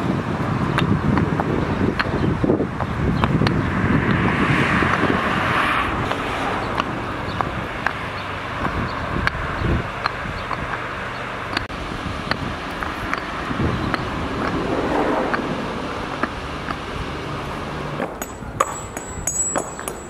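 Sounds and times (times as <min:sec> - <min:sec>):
wind buffeting microphone: 0:00.0 - 0:19.4.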